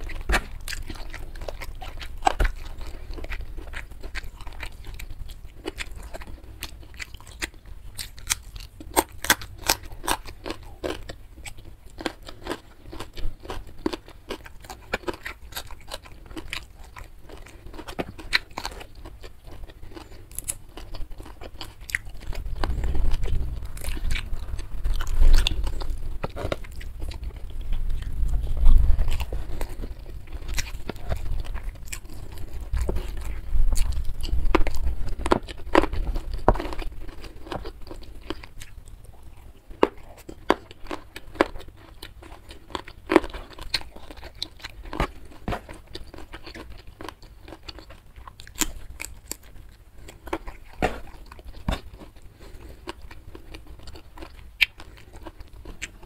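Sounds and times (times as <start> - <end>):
person chewing and crunching food: 0.0 - 56.0
low rumble: 21.8 - 36.6.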